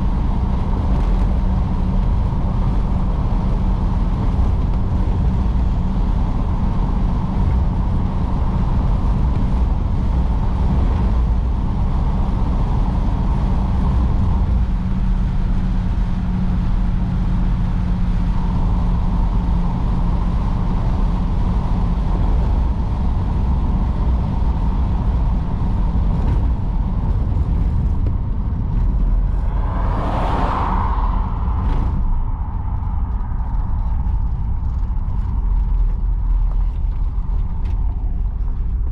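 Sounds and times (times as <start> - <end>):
car engine and road rumble: 0.0 - 38.9
brief whoosh: 29.2 - 33.8.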